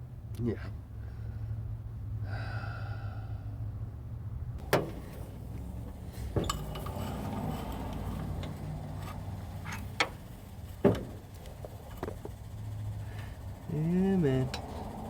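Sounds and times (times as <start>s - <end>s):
sharp metal knocks: 4.6s - 13.0s
metal clinking: 4.6s - 15.0s.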